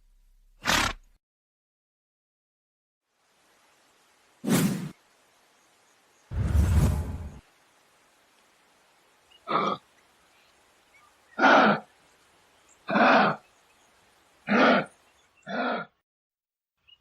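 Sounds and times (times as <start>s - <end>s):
animal calling: 11.3s - 12.0s, 12.8s - 13.5s, 14.4s - 16.0s.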